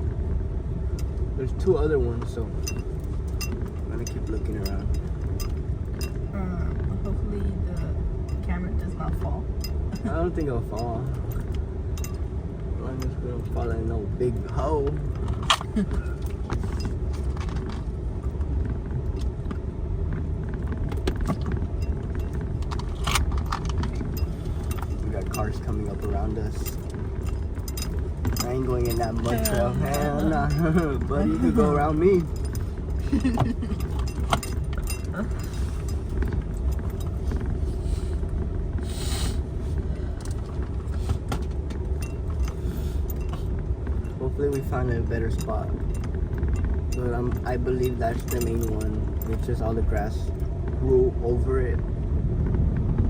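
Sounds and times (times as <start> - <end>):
low road rumble: 0.0 - 53.0
rattles and knocks from bumps: 14.3 - 38.8, 39.7 - 50.9
knocks from rough road: 14.9 - 25.4
brief hiss: 38.8 - 39.4.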